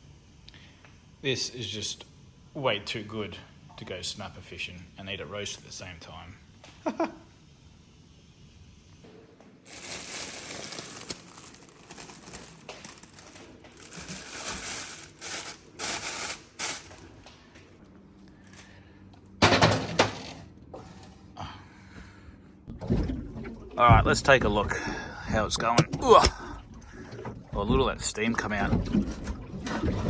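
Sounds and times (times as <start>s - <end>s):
rustling of wrapping: 9.6s - 17.2s
utensils and containers clattering: 9.7s - 17.0s, 19.4s - 21.3s.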